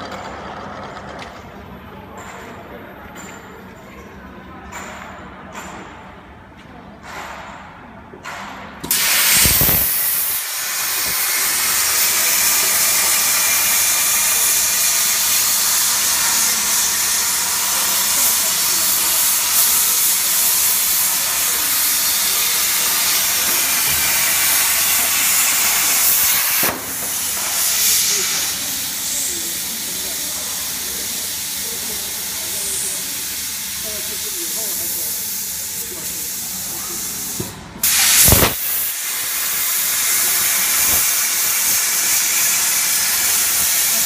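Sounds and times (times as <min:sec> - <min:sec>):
cutting torch hissing: 0:08.8 - 0:44.0.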